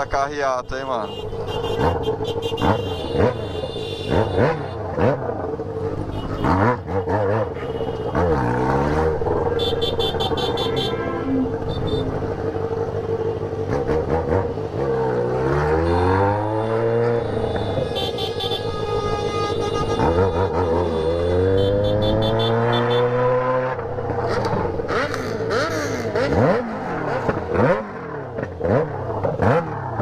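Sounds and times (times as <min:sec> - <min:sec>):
horns tooting: 0:00.0 - 0:05.2, 0:05.9 - 0:13.9, 0:15.0 - 0:23.7
motorcycle engines revving: 0:00.0 - 0:30.0.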